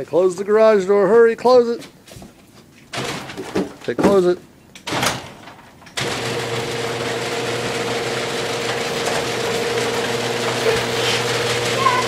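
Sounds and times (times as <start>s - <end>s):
garage door drive rattling: 2.9s - 4.2s, 4.8s - 12.0s
garage door motor hum: 4.8s - 12.0s.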